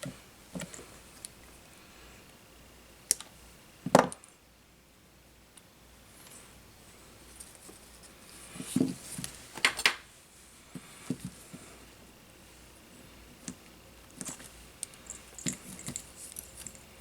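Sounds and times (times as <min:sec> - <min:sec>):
soft rustling: 0:06.1 - 0:09.6.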